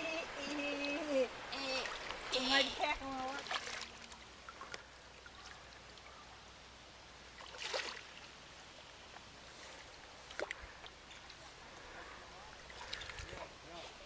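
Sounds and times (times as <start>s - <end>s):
river water flowing: 0.0s - 14.0s
water splash: 3.3s - 4.8s, 7.4s - 8.2s.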